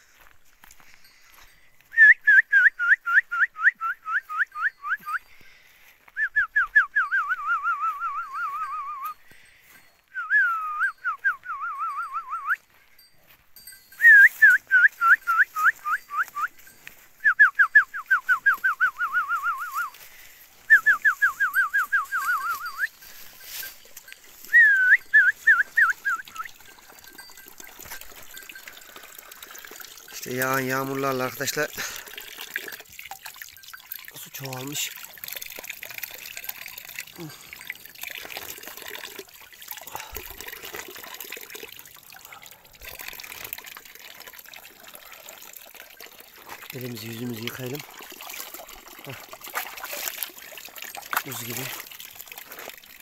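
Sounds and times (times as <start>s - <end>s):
bird calling rapid whistled notes: 20.7s - 22.9s.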